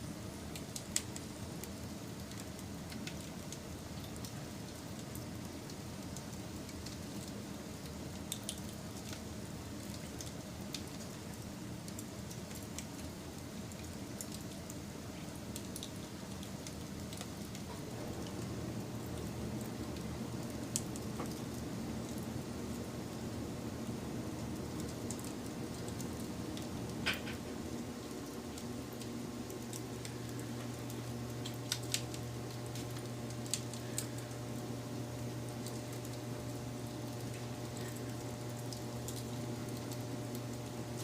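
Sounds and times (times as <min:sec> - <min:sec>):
wood fire crackling and popping: 0:00.1 - 0:41.0.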